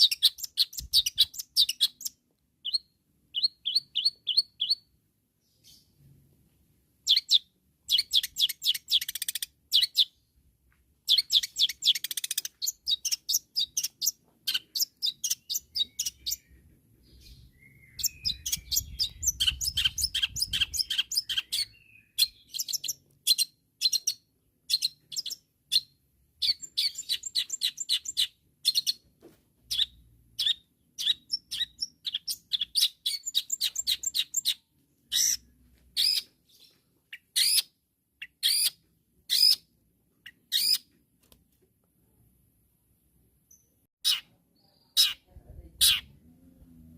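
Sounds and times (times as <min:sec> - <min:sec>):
bird chirping rapidly: 0:00.0 - 0:04.9, 0:07.0 - 0:10.3, 0:11.0 - 0:29.0, 0:29.7 - 0:40.9.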